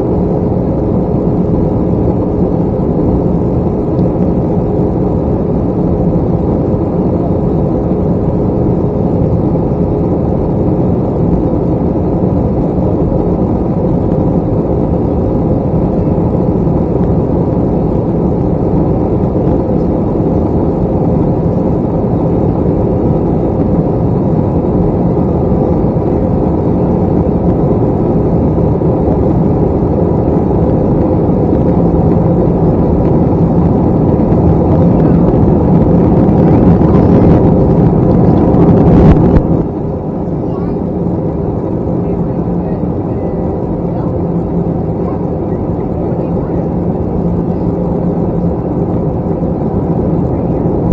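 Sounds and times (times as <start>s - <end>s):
faint steady hum: 0.0s - 50.9s
jet engine drone in cabin: 0.0s - 50.9s
rushing air: 22.0s - 42.0s.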